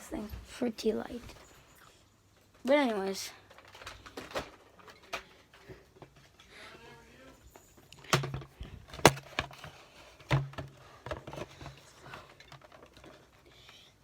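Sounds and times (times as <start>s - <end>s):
plastic canister clicks and knocks: 8.0s - 11.8s.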